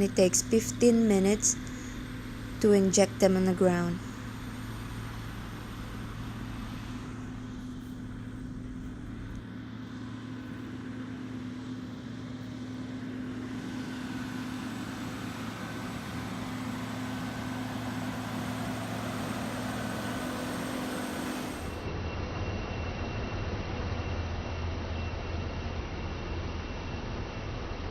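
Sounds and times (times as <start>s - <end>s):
tractor engine running under load: 0.0s - 21.9s.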